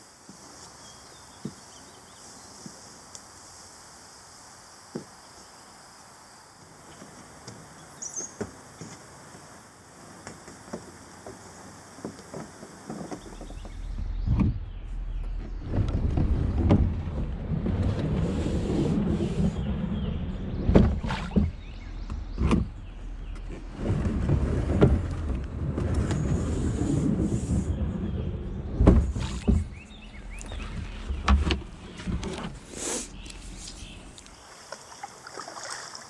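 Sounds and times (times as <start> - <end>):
kayak hull scraping: 10.1 - 35.8.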